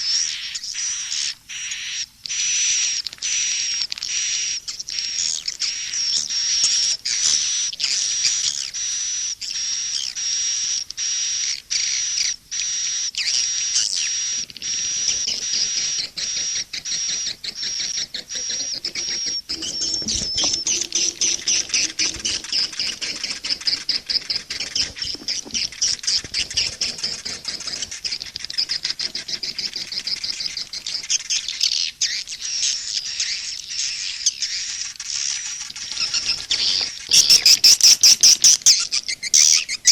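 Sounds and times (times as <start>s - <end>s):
swiftlets twittering: 13.8s - 31.2s.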